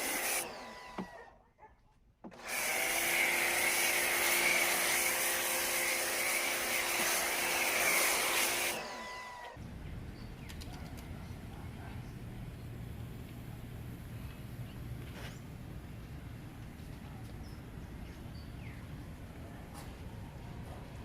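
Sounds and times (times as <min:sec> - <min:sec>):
electric motor tool whining: 0:00.0 - 0:01.3, 0:02.3 - 0:09.6.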